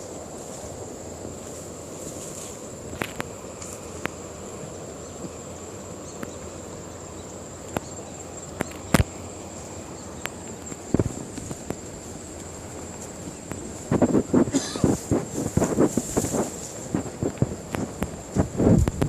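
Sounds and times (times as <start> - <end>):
insects calling: 0.0 - 19.0
low outdoor hum: 0.0 - 19.0.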